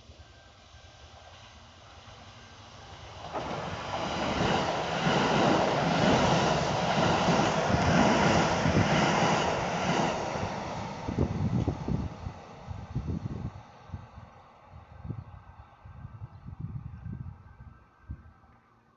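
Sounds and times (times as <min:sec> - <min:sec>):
electric train passing: 0:00.0 - 0:18.9.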